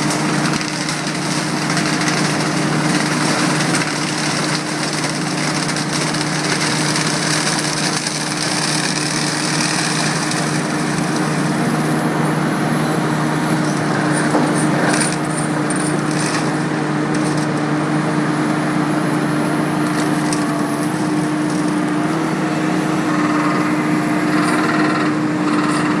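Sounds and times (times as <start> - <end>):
sharp cracks: 0.0 - 12.0
forestry mulcher engine drone: 0.0 - 26.0.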